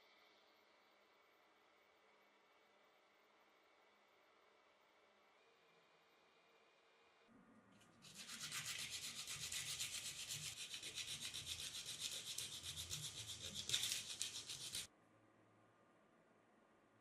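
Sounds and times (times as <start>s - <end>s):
rapid rubbing scraping noise: 8.0s - 14.9s.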